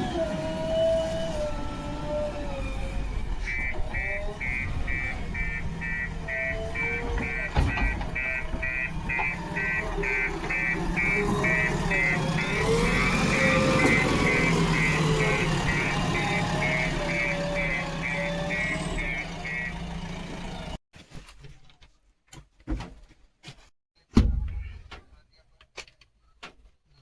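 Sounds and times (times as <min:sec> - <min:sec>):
diesel engine running: 0:00.0 - 0:20.8
reversing alarm beeping: 0:03.4 - 0:19.9.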